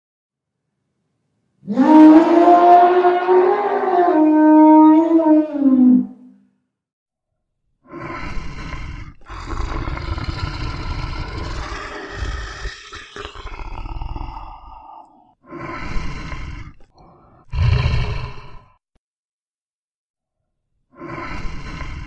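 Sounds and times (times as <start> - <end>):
tiger roaring: 1.6 - 6.1, 8.4 - 15.3, 15.9 - 18.7.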